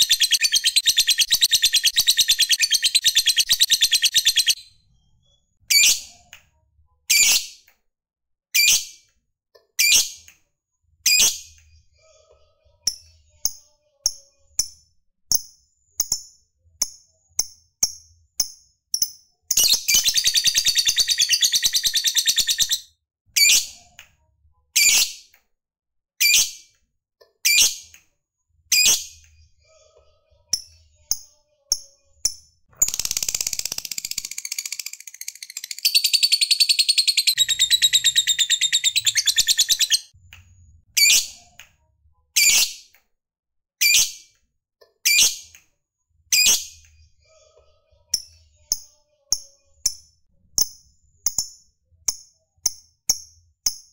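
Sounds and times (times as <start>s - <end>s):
lovebird chattering trill: 0.0s - 4.6s, 32.8s - 40.1s
lovebird chirping: 0.0s - 6.0s, 19.0s - 22.8s, 32.8s - 40.1s.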